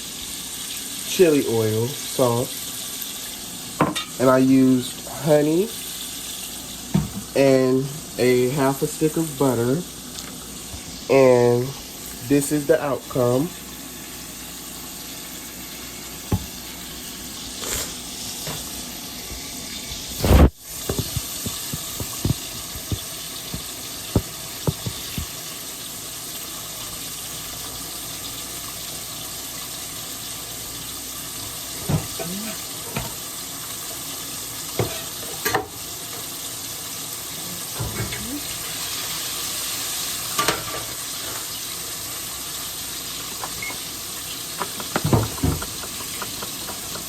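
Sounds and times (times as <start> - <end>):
food sizzling: 0.0 - 47.0
kitchen utensils clicking: 44.5 - 47.0.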